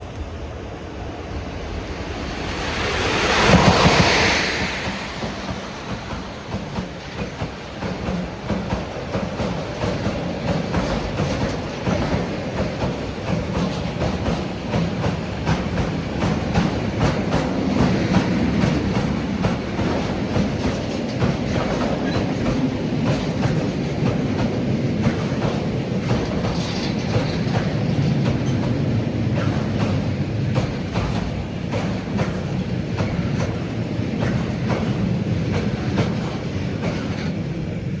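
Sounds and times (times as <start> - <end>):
train wheels clattering over rails: 1.9 - 38.0.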